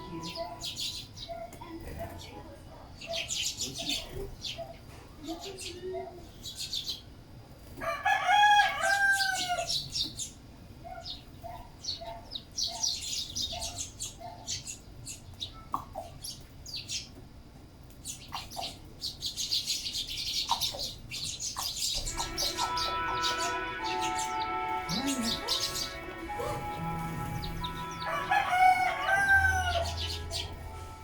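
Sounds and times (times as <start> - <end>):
sparrows chirping: 0.0 - 7.2, 8.8 - 17.2, 17.9 - 31.0
rooster crowing: 7.8 - 9.8, 22.0 - 31.0.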